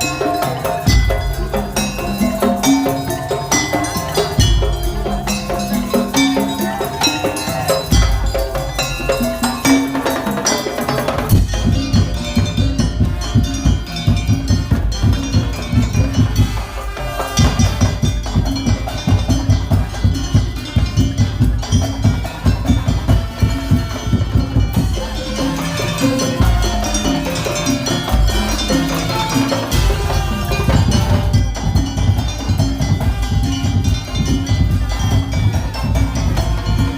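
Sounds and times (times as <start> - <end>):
big bass drums: 0.0 - 10.4, 11.1 - 36.9
ringing pitched melody: 17.4 - 36.9.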